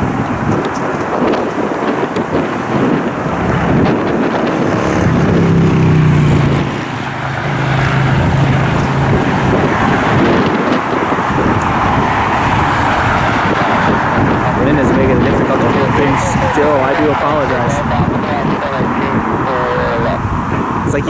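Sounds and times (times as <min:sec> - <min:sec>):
low engine drone: 0:00.0 - 0:21.0
wind buffeting microphone: 0:00.0 - 0:21.0.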